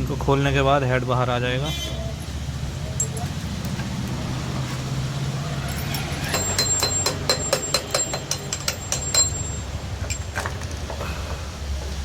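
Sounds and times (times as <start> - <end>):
scattered knocks: 6.1 - 10.2.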